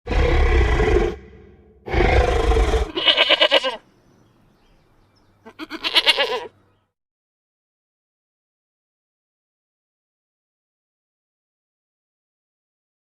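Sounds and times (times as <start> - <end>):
quavering bleats: 0.1 - 3.8, 5.4 - 6.6.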